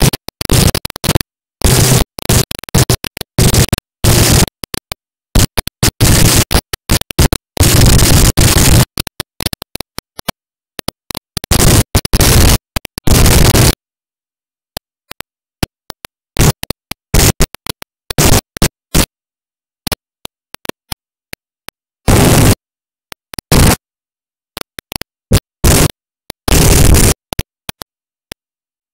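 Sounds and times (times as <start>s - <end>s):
bursts of loud static noise: 0.0s - 13.8s, 15.1s - 19.1s, 22.0s - 22.6s, 23.2s - 23.8s, 24.6s - 27.8s.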